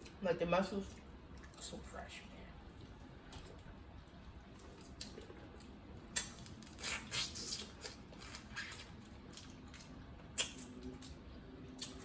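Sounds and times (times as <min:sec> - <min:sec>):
chewing and mouth smacks: 0:04.4 - 0:12.0.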